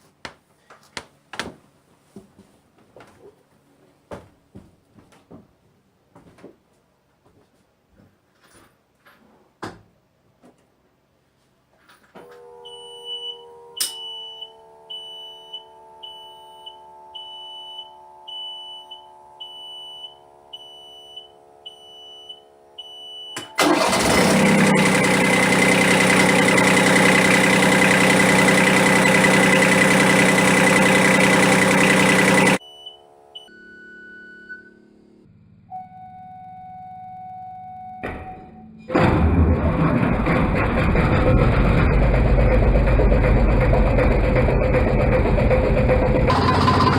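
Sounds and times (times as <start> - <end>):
diesel engine running: 23.5 - 32.6, 38.9 - 46.9.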